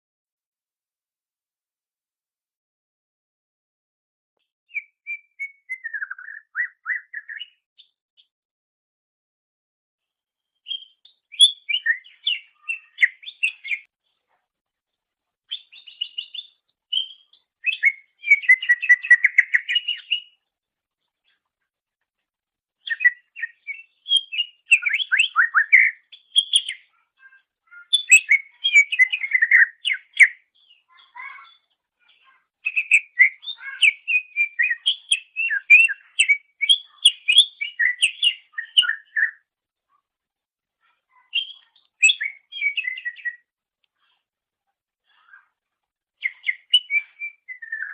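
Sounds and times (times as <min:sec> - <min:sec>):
bird singing whistled phrases: 0:04.7 - 0:07.6, 0:10.6 - 0:13.9, 0:15.5 - 0:20.4, 0:22.8 - 0:26.9, 0:27.7 - 0:31.6, 0:32.6 - 0:39.4, 0:41.2 - 0:43.5, 0:46.2 - 0:47.9.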